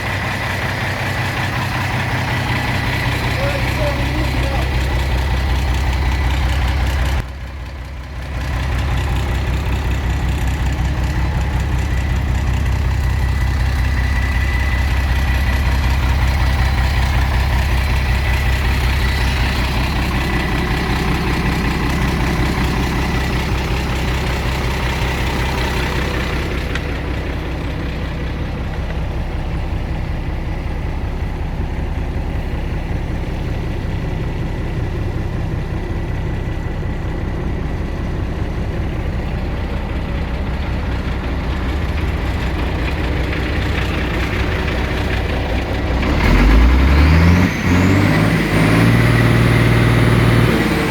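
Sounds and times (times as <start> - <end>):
truck diesel engine idling: 0.0 - 50.9.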